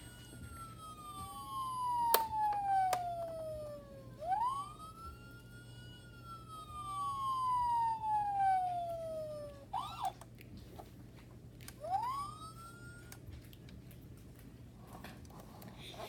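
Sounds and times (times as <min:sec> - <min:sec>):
siren yelps with clicks: 0:00.0 - 0:10.2, 0:11.8 - 0:13.2
toy police siren wailing: 0:00.0 - 0:10.2, 0:11.8 - 0:13.2.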